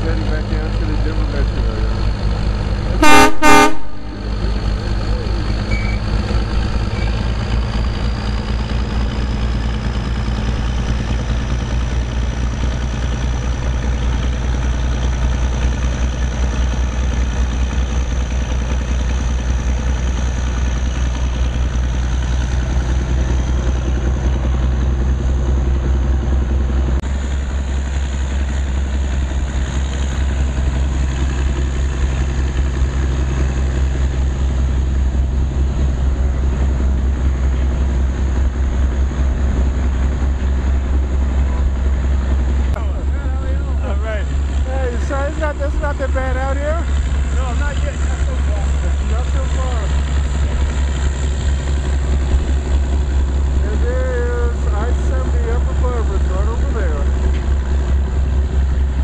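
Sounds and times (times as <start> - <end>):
diesel locomotive engine drone: 0.0 - 59.0
train cars rumbling: 0.0 - 59.0
train horn blast: 3.0 - 4.2.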